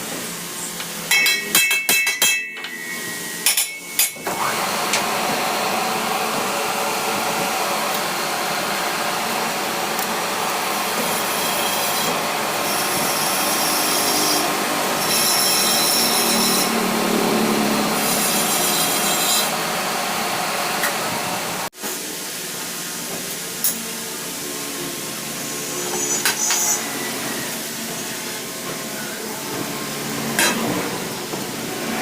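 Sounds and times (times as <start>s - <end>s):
power tool rasping on metal: 11.0s - 19.6s
high-pitched squeal: 12.6s - 19.6s, 24.7s - 31.1s.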